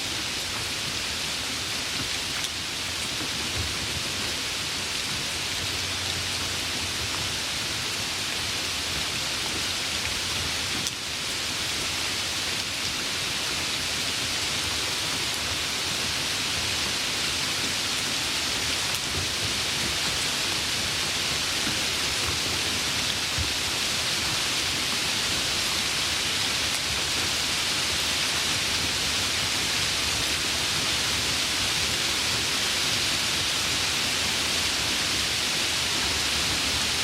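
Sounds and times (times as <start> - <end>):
steady rain hiss: 0.0 - 37.0.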